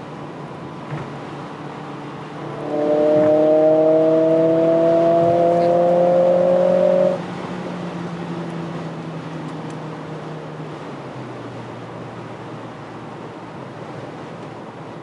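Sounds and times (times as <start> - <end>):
car engine accelerating: 1.2 - 12.5.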